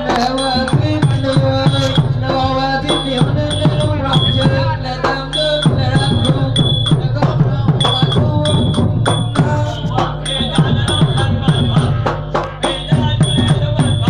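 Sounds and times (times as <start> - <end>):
drums in a busy rhythm: 0.0 - 14.0
ringing metal strikes: 2.9 - 12.0.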